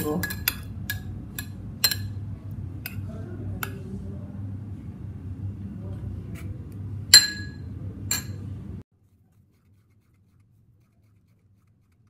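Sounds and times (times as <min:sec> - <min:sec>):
utensil clinking on bowl: 0:00.0 - 0:02.2, 0:07.2 - 0:08.4
low steady hum: 0:00.0 - 0:08.8.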